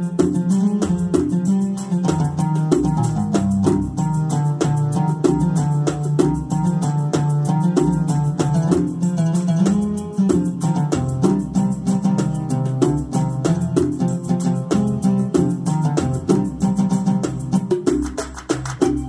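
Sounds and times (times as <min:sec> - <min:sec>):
hand drum strokes: 0:00.0 - 0:19.0
steady bass line: 0:00.0 - 0:19.0.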